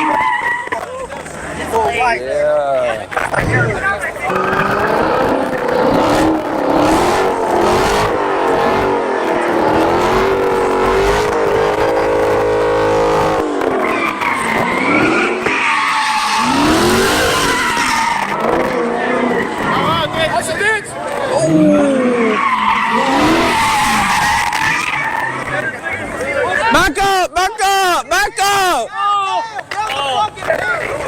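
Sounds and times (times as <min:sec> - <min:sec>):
tyres squealing: 0:00.0 - 0:02.1, 0:02.9 - 0:28.9
car engine revving hard: 0:03.3 - 0:26.0.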